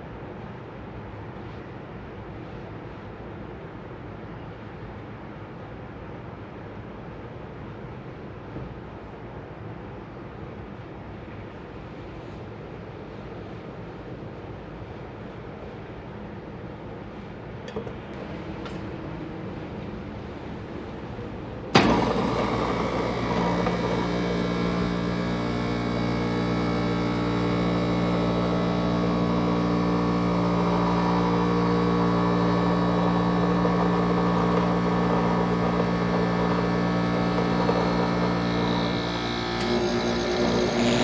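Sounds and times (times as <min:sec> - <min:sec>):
air conditioner hum and drone: 0:00.0 - 0:41.0
compressor clunk: 0:21.7 - 0:41.0.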